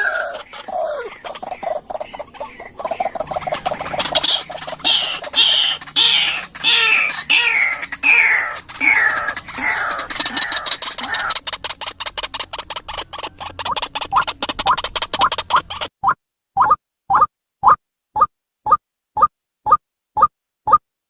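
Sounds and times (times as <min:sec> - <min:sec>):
bird calling harshly: 0:00.0 - 0:15.9.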